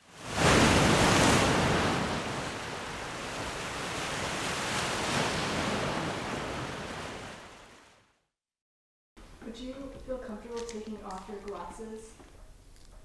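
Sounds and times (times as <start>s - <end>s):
ocean waves washing in: 0.0s - 8.2s.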